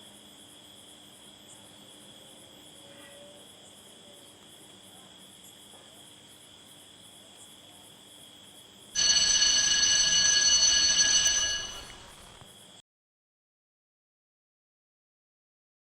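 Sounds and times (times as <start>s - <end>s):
high-pitched ringing tone: 9.0s - 12.4s.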